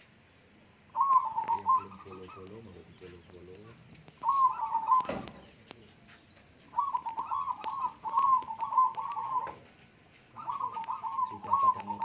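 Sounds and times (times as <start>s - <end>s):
dove cooing: 0.9s - 12.0s.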